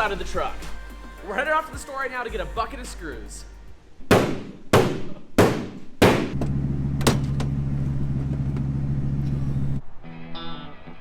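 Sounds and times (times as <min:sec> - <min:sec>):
vehicle engine droning: 0:06.4 - 0:09.8.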